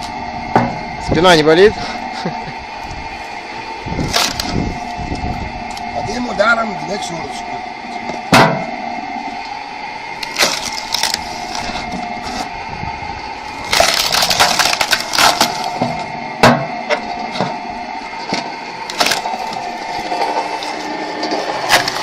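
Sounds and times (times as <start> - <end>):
wood cracking apart: 4.0 - 4.6, 10.2 - 11.9, 13.5 - 16.0, 18.2 - 22.0.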